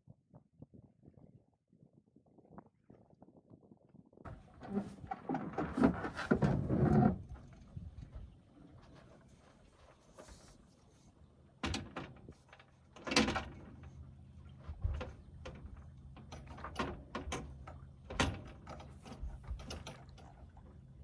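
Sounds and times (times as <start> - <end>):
sailing gear knocking and rattling: 4.3 - 10.6, 11.6 - 14.0, 14.6 - 20.3.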